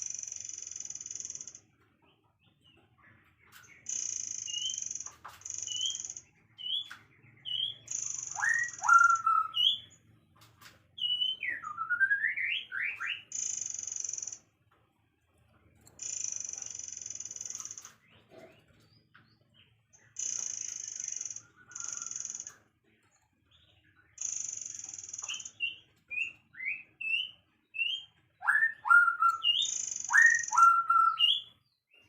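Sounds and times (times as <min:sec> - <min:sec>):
bird chirps and whistles: 0:03.9 - 0:10.0, 0:11.0 - 0:14.4, 0:20.2 - 0:22.5, 0:24.2 - 0:31.5.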